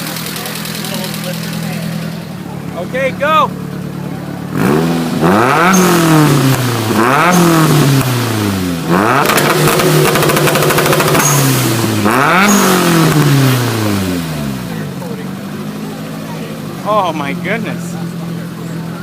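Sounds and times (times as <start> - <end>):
car engine revving hard: 4.3 - 16.8.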